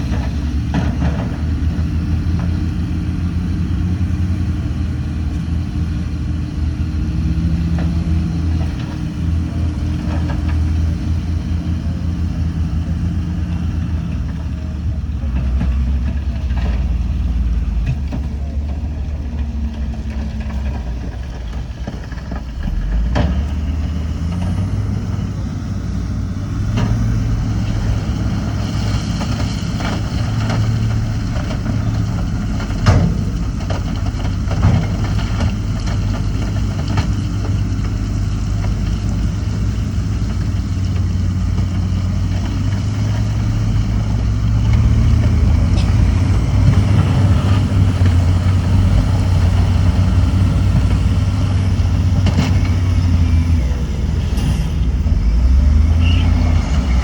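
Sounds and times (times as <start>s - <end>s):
heavy diesel engine under load: 0.0s - 57.0s.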